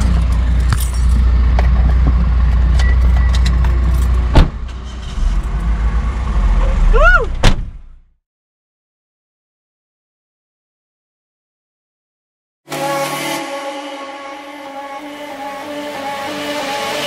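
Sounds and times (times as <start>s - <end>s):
car engine rumbling: 0.0s - 8.1s.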